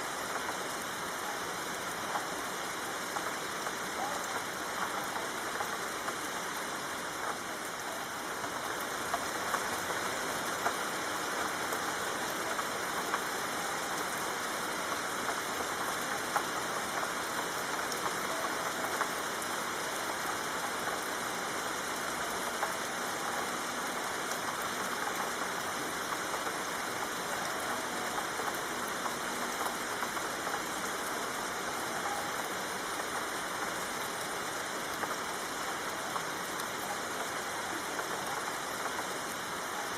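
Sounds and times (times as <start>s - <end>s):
light ticks of raindrops: 0.0s - 39.9s
soft rain falling: 0.0s - 39.9s.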